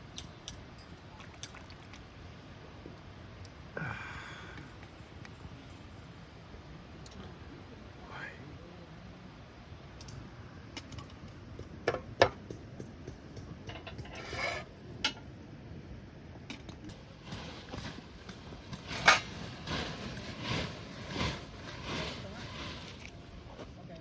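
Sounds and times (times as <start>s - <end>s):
hard objects knocking: 10.8s - 14.3s.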